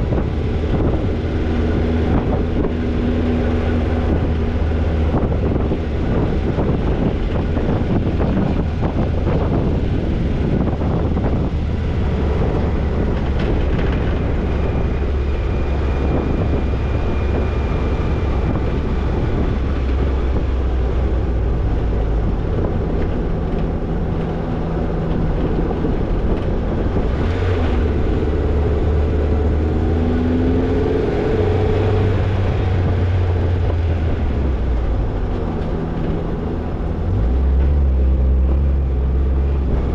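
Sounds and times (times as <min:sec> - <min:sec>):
car engine at low revs: 0:00.0 - 0:39.9
car body knocking and rattling: 0:04.4 - 0:15.4.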